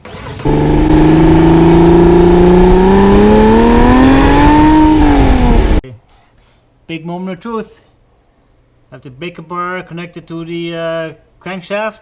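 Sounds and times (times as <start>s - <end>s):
car engine accelerating: 0.1s - 5.8s.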